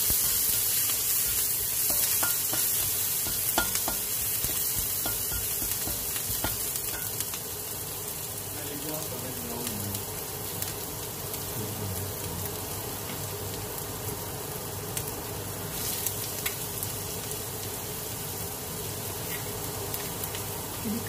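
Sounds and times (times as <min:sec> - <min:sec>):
onion sizzling in hot oil: 0:00.0 - 0:21.0.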